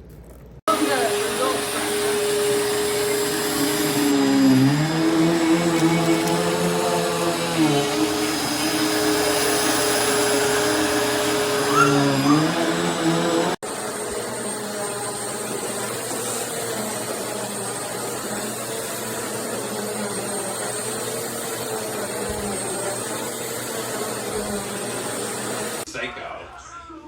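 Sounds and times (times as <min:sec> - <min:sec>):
vacuum cleaner running: 0:00.7 - 0:25.9.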